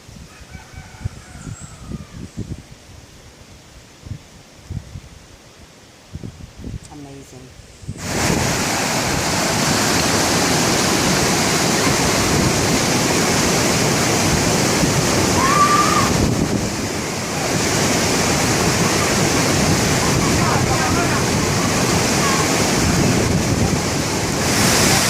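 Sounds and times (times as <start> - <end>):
stream cascading over rocks: 8.0 - 25.0.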